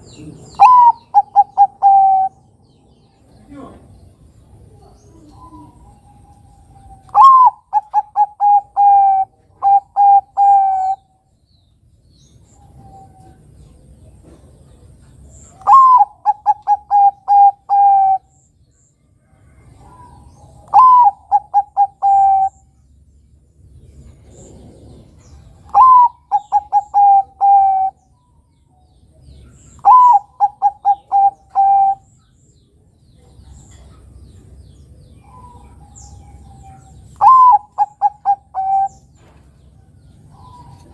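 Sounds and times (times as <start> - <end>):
dove cooing: 0.0 - 2.6, 4.6 - 11.1, 15.5 - 18.4, 19.6 - 22.7, 24.1 - 28.1, 29.4 - 32.1, 35.2 - 39.2.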